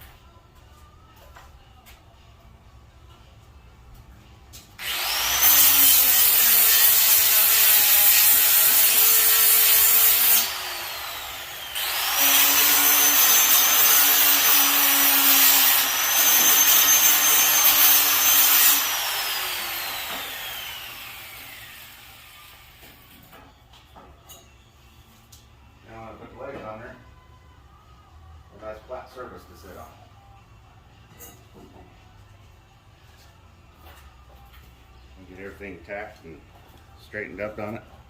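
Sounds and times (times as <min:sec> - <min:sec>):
electric grinder grinding metal: 0:04.8 - 0:22.8.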